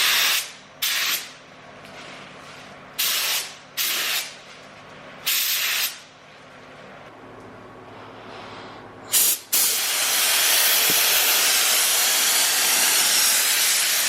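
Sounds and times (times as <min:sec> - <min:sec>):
spray gun bursts: 0:00.0 - 0:01.4, 0:03.0 - 0:04.4, 0:05.2 - 0:06.0, 0:09.1 - 0:14.0.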